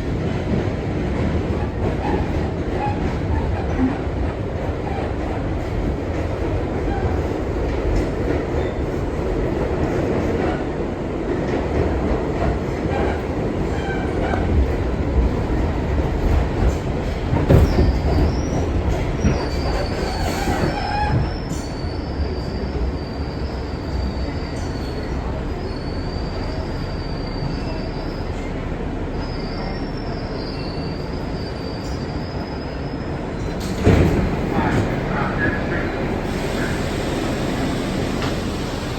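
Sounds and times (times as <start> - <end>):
subway wheels rumbling on rail: 0.0 - 38.9
high wheel squeal: 19.2 - 28.5, 29.2 - 33.7.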